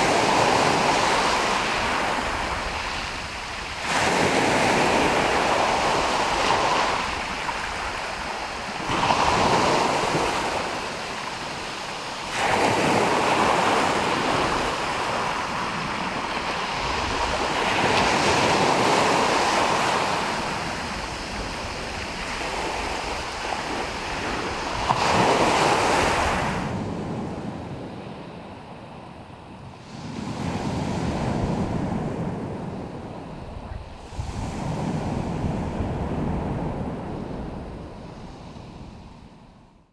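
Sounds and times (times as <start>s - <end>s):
waves breaking: 0.0s - 26.8s.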